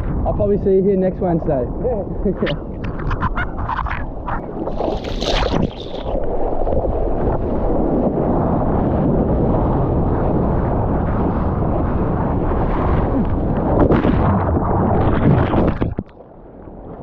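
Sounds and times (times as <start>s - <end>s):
wind buffeting microphone: 0.0s - 17.0s
water sloshing: 2.8s - 6.2s
water splash: 3.8s - 6.9s.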